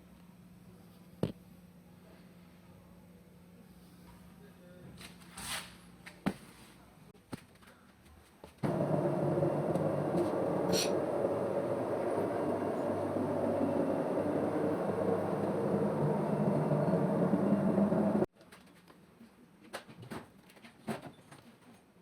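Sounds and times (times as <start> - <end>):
low mechanical running noise: 8.6 - 18.3.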